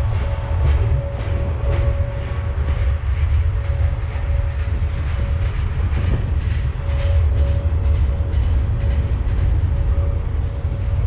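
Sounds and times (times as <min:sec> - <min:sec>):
train cars rumbling past: 0:00.0 - 0:11.0
wheels clicking over rail joints: 0:00.0 - 0:11.0.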